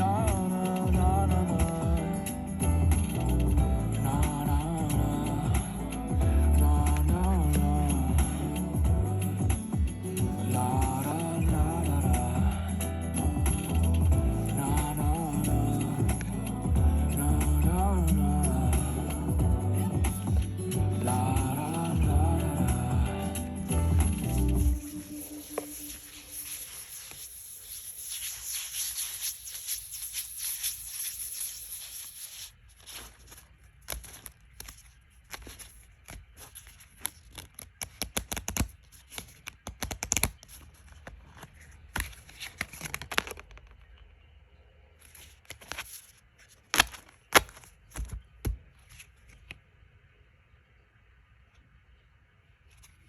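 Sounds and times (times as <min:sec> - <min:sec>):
cards and paper rustling: 0:20.0 - 0:22.1, 0:24.1 - 0:44.0, 0:45.0 - 0:49.6, 0:52.7 - 0:53.0
paper and card clicks: 0:24.1 - 0:44.0, 0:45.0 - 0:49.6.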